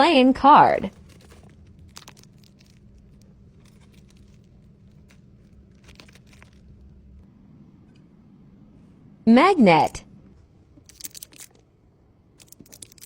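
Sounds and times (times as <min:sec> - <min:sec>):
low steady hum: 0:00.0 - 0:13.0
plastic crinkling and clicks: 0:00.9 - 0:06.9, 0:10.8 - 0:11.7, 0:12.4 - 0:13.0.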